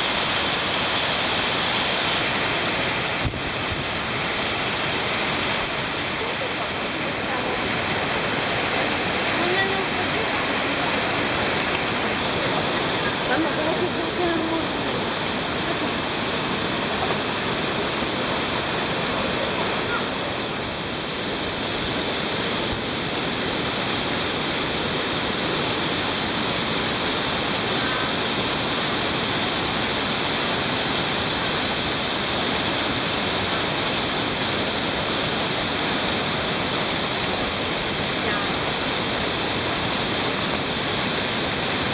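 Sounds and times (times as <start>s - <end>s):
flowing water rushing: 0.0s - 41.9s.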